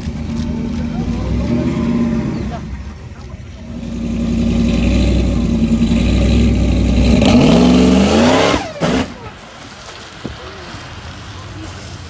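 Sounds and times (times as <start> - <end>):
race truck engine revving: 0.0 - 9.4.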